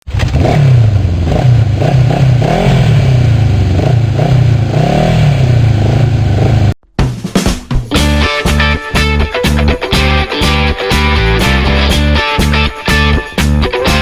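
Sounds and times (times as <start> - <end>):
motorcycle engine revving: 0.0 - 6.8.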